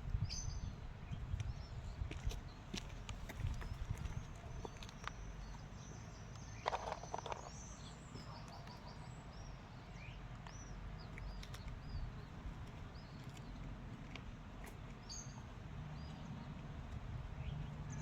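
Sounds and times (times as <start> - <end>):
small songbirds chirping: 0.0 - 18.0.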